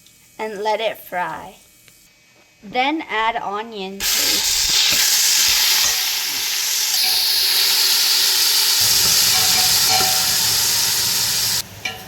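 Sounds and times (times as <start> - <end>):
paste frying in hot oil: 4.0 - 11.6.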